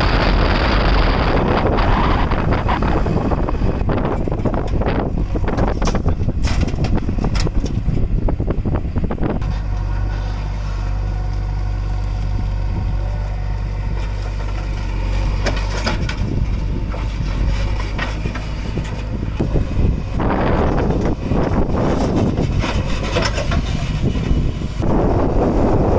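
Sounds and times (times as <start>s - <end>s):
heavy diesel engine running: 0.0s - 25.9s
crunching and clattering: 3.8s - 8.1s, 13.8s - 24.3s.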